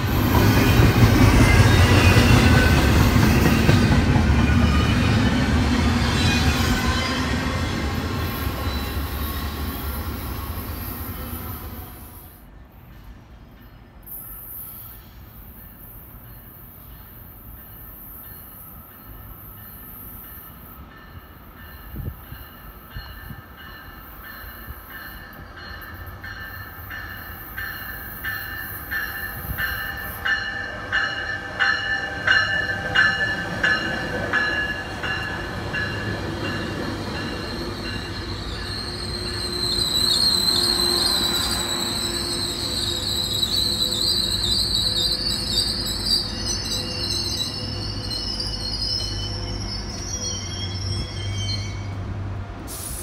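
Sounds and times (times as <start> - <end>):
train bell ringing: 0.0 - 5.6, 15.6 - 52.0
train rumble: 0.0 - 14.0, 14.9 - 53.0
wheel squeal: 37.4 - 51.9.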